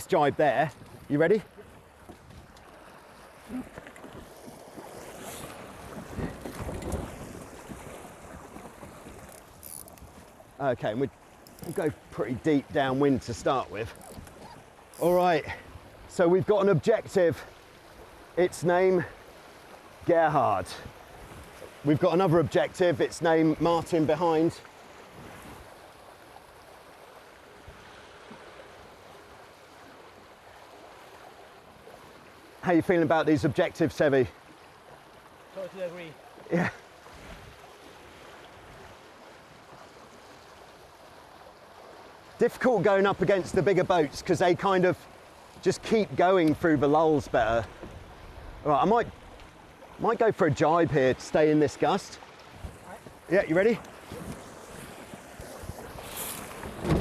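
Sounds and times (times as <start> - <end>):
water rushing past hulls: 0.0 - 57.0
wind buffeting microphone: 5.6 - 8.6.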